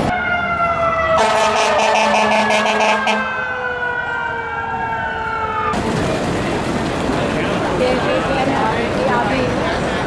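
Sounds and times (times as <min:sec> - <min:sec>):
emergency siren wailing: 0:00.0 - 0:10.0.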